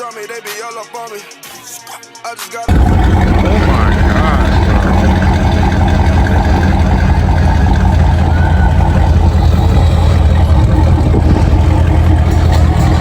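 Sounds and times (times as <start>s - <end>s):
car engine with deep exhaust rumble: 2.7s - 13.0s.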